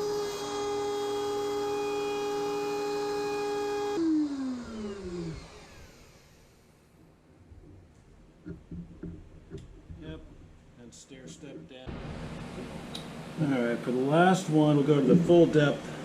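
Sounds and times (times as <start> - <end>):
wood router whining: 0.0 - 7.0.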